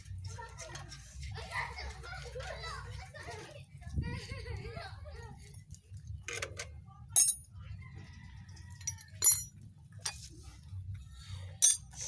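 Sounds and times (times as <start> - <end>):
metal tools clinking: 7.2 - 7.5, 8.8 - 10.2, 11.6 - 12.0.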